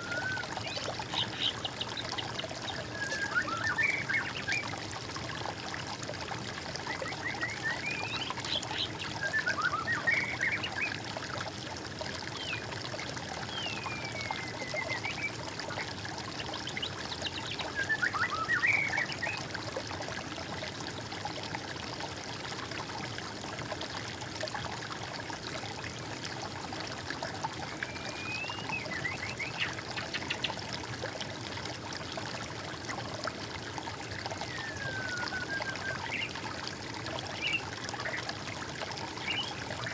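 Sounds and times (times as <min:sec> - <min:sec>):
birds singing: 0:00.0 - 0:04.7, 0:06.9 - 0:11.0, 0:16.7 - 0:19.4, 0:27.8 - 0:30.6, 0:34.4 - 0:36.4, 0:37.3 - 0:38.2, 0:39.1 - 0:39.9
water trickling: 0:00.0 - 0:39.9.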